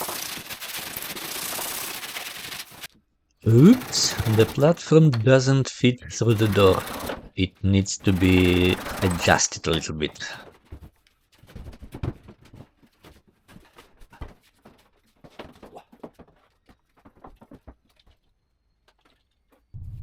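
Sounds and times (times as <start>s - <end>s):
electric motor humming: 3.5s - 4.8s, 6.2s - 7.2s, 8.0s - 9.5s.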